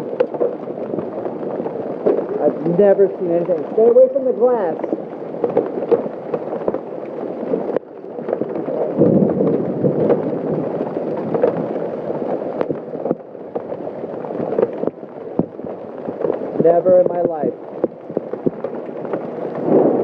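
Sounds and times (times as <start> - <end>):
hail and rain hissing: 0.0 - 20.0
hailstones knocking on hard surfaces: 0.0 - 20.0.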